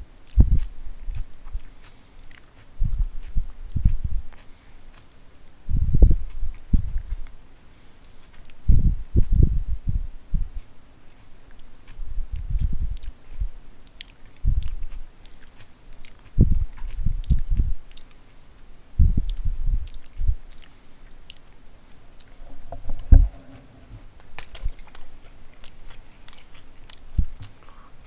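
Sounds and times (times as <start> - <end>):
person chewing with wet smacks: 0.0 - 7.4, 8.0 - 9.5, 10.4 - 28.0
low jaw thuds: 0.4 - 0.7, 5.7 - 7.2, 14.4 - 14.8, 16.4 - 17.8, 19.0 - 20.4, 22.2 - 25.0.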